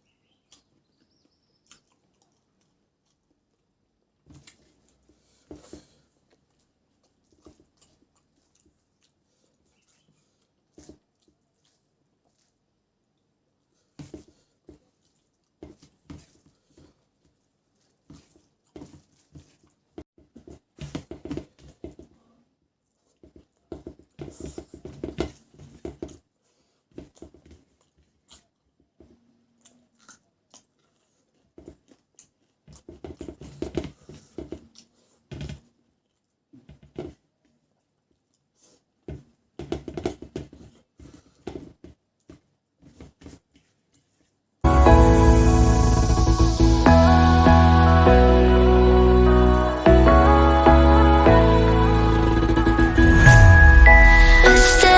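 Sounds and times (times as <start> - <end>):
person chewing and crunching: 1.5 - 12.6, 27.0 - 34.9.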